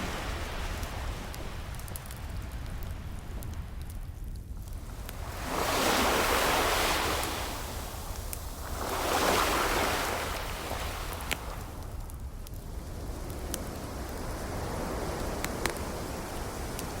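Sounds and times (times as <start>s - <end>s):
ocean waves washing in: 0.0s - 3.9s, 4.7s - 12.0s
low surf rumble: 0.0s - 17.0s
fireplace crackle pops: 10.8s - 12.7s, 15.1s - 17.0s.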